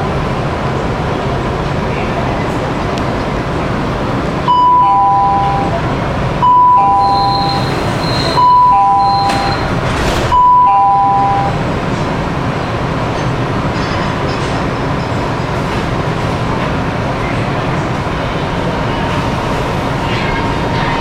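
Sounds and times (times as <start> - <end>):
two-note door warning chime: 6.5 - 7.7, 8.4 - 9.7, 10.4 - 11.6.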